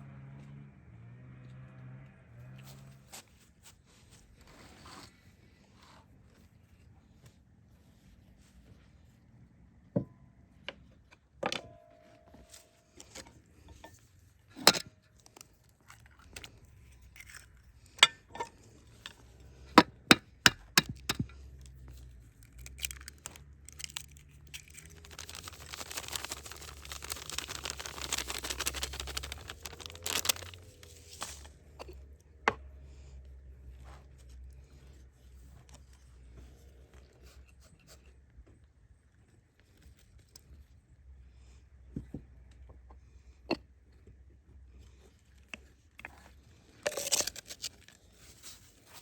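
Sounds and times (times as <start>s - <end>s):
sharp knocks and clicks: 19.8s - 21.3s
scraping or rustling: 21.9s - 31.8s.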